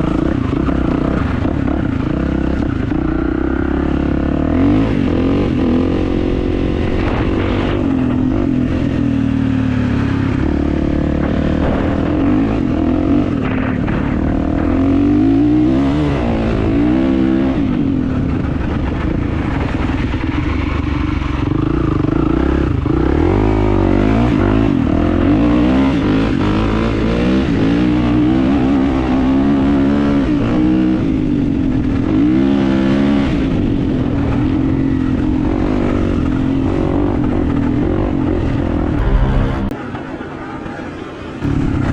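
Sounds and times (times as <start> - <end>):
motocross bike engine revving: 0.0 - 19.0, 34.8 - 39.9.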